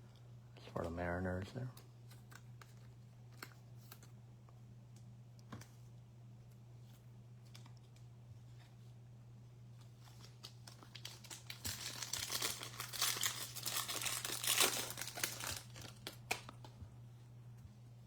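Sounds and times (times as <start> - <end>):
steady low hum: 0.0 - 18.0
wrapper tearing and crinkling: 10.0 - 16.6.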